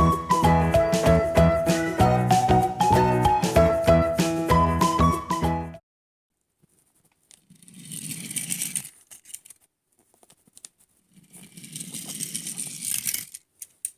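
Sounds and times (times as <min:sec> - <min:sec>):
toy packaging rustling and clicking: 0:06.7 - 0:13.9.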